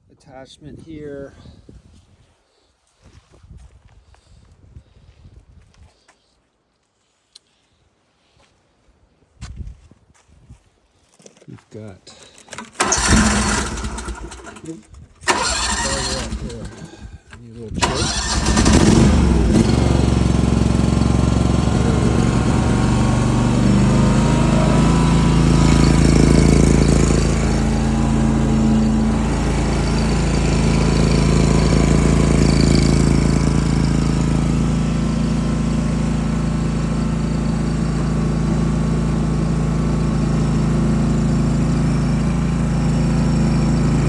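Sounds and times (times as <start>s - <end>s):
small engine running: 12.2s - 17.1s, 17.8s - 44.0s.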